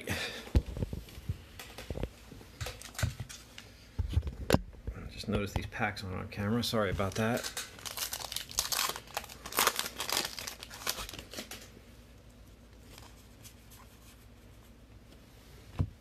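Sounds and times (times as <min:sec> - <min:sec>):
card pack wrappers torn and crinkled: 0:02.6 - 0:03.5, 0:07.0 - 0:11.7.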